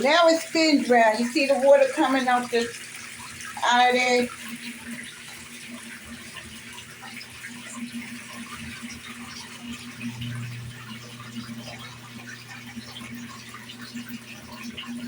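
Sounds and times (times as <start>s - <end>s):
washing machine motor hum: 0.0s - 15.0s
water splashing into sink: 0.0s - 15.0s
deeper hum: 9.8s - 13.6s.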